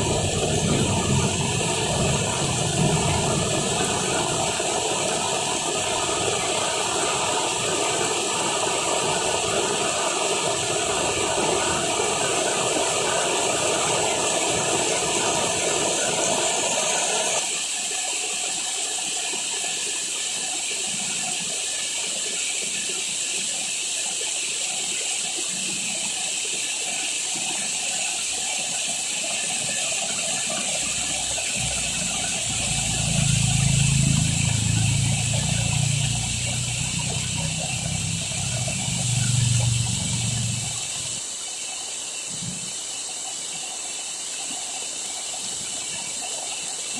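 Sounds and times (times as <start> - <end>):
low hum: 0.0 - 4.8, 31.3 - 41.2
heavy rain falling: 0.0 - 5.2, 30.8 - 41.2
water gushing: 0.0 - 46.9.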